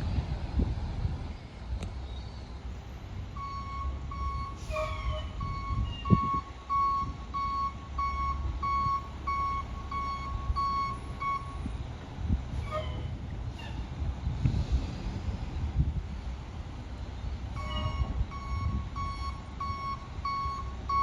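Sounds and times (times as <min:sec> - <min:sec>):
truck engine rumbling: 0:00.0 - 0:21.0
truck backup alarm beeping: 0:03.3 - 0:11.8, 0:17.5 - 0:21.0.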